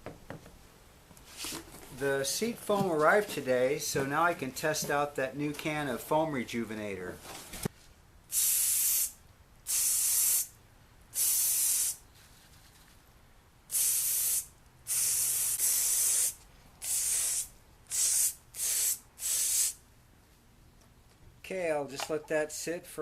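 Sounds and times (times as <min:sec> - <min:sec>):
aerosol can spraying: 0:08.3 - 0:10.5, 0:11.2 - 0:12.0, 0:13.7 - 0:19.8.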